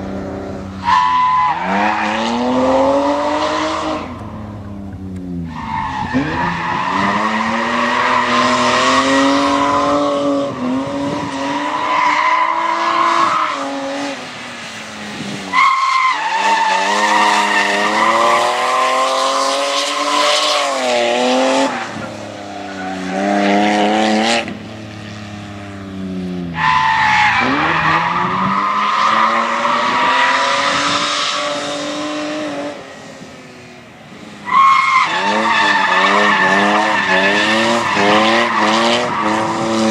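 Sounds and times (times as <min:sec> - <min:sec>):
car engine revving: 0:16.3 - 0:32.8, 0:34.5 - 0:39.9.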